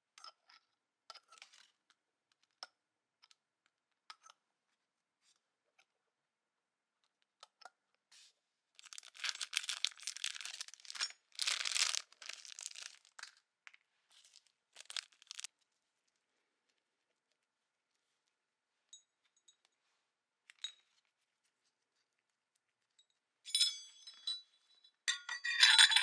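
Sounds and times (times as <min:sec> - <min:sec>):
packaging crinkling and tearing: 0:08.8 - 0:13.3, 0:14.2 - 0:15.5.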